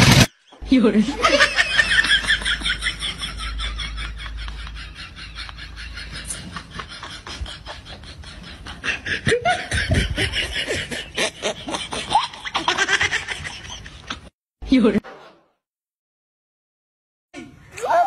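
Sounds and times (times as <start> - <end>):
people laughing: 0.1 - 14.3.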